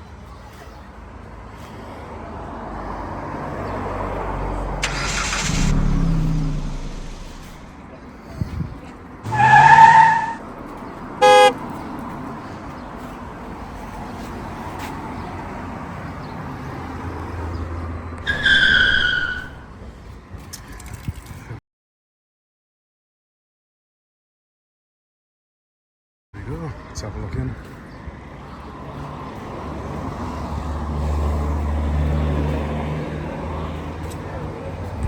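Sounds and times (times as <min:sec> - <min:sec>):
car driving by: 0:02.5 - 0:08.0, 0:09.3 - 0:11.8
short electronic beep: 0:11.2 - 0:11.5
car horn toots: 0:11.2 - 0:11.6.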